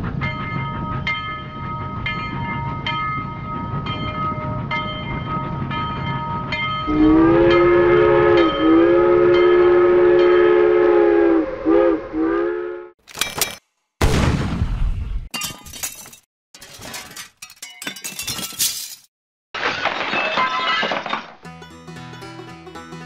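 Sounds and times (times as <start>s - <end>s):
train horn blasts: 6.8s - 13.0s.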